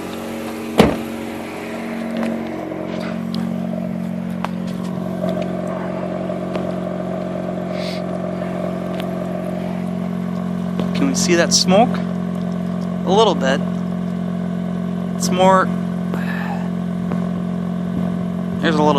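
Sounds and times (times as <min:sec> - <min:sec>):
rotary engine idling unsteadily: 0:00.0 - 0:18.9
sharp thump: 0:00.4 - 0:01.3.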